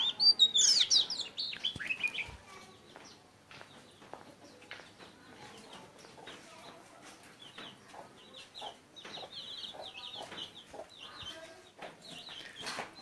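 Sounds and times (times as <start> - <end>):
chickens clucking softly: 3.7 - 13.0.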